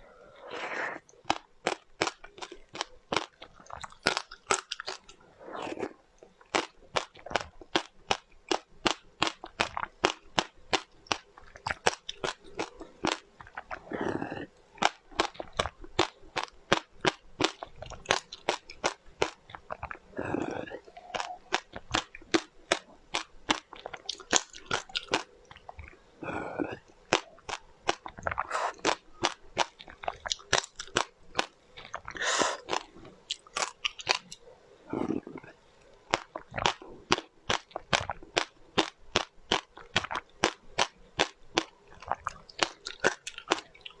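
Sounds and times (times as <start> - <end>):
chewing crunchy food: 0.0 - 44.0
soft mouth sounds: 0.0 - 44.0.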